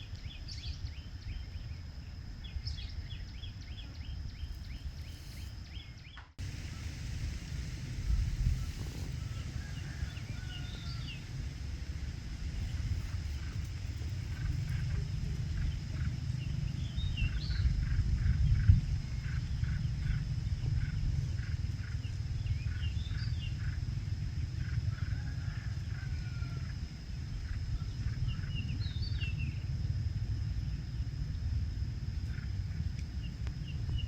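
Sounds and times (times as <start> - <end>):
wind rumbling on microphone: 0.0 - 34.0
bird chirping: 12.6 - 23.8.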